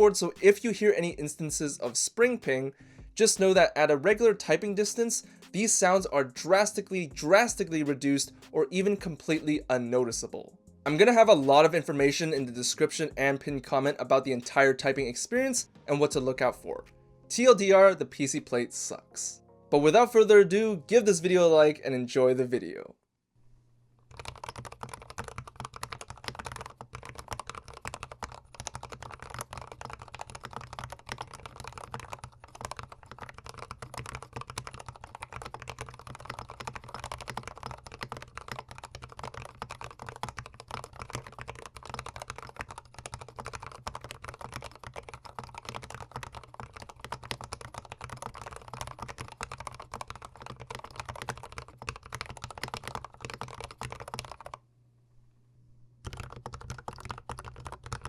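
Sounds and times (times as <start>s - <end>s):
fast typing on mechanical keyboard: 24.1s - 54.6s, 56.0s - 58.0s.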